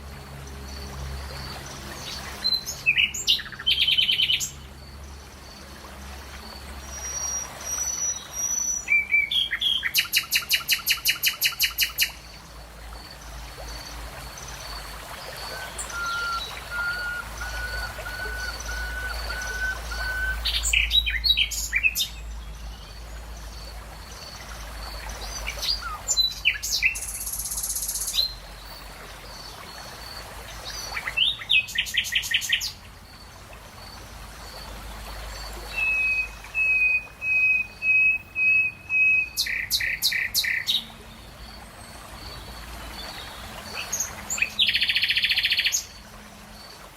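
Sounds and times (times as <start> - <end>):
birds singing and calling: 1.7 - 4.7, 6.8 - 12.4, 13.6 - 29.5, 35.4 - 41.6, 43.0 - 46.0
long whistled bird note: 15.6 - 20.6.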